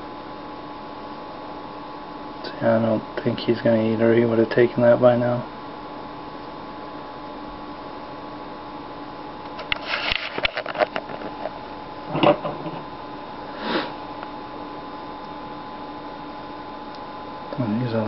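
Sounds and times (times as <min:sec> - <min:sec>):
steady electrical hum: 0:00.0 - 0:18.0
short rustling scrapes: 0:09.7 - 0:10.8.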